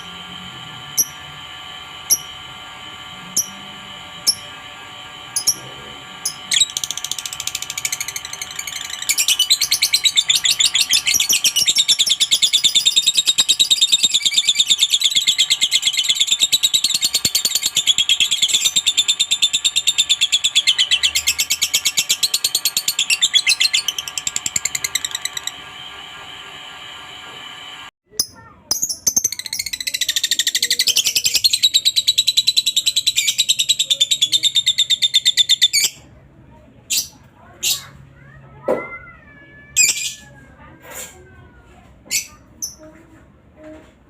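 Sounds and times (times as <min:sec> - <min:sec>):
bird chattering trill: 0:02.0 - 0:02.4, 0:05.2 - 0:25.6, 0:28.1 - 0:36.1.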